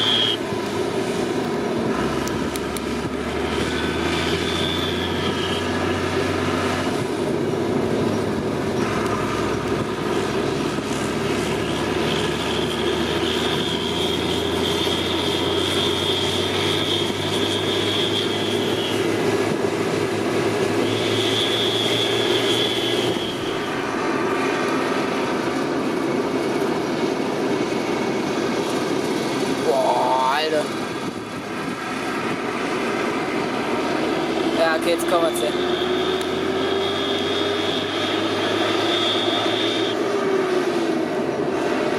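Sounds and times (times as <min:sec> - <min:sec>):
turbo whistling: 0:00.0 - 0:00.5, 0:03.7 - 0:06.1, 0:11.6 - 0:19.2, 0:20.6 - 0:24.0, 0:34.4 - 0:40.2
tractor diesel engine running: 0:00.0 - 0:41.9.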